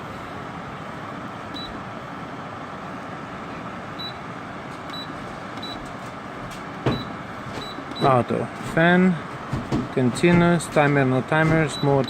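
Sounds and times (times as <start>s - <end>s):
dehumidifier running: 0.0s - 12.0s.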